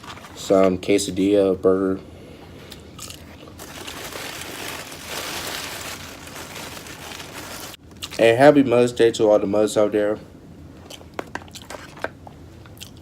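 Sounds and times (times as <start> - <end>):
food packaging crinkling: 3.0 - 8.2.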